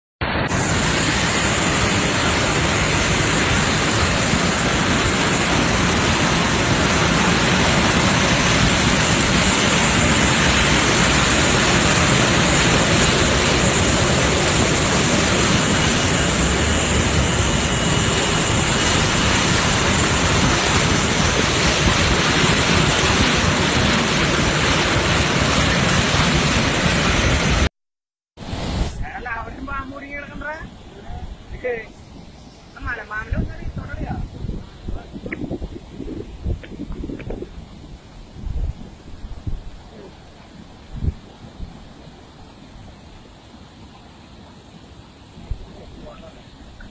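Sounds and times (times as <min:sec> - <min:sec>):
faint high whine: 0:00.2 - 0:23.6, 0:28.5 - 0:46.9
aircraft engines roaring: 0:00.2 - 0:27.7, 0:29.2 - 0:43.3, 0:44.6 - 0:46.9.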